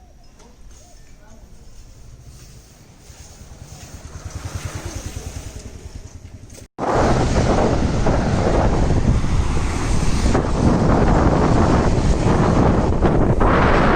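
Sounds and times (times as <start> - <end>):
wind buffeting microphone: 6.8 - 13.9.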